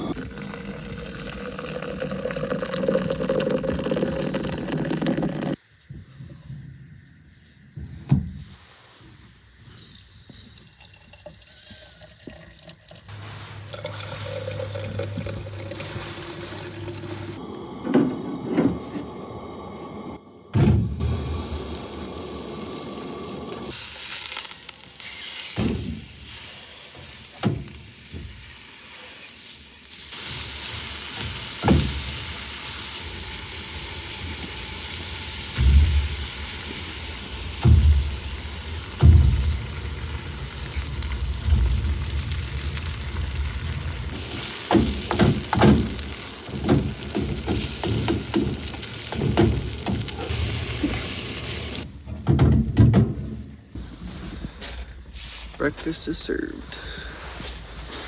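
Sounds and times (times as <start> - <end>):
food sizzling in a pan: 20.8 - 51.9.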